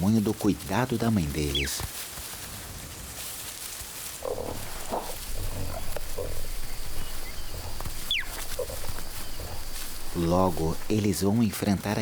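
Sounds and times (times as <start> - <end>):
cheetah cubs calling: 4.2 - 11.1.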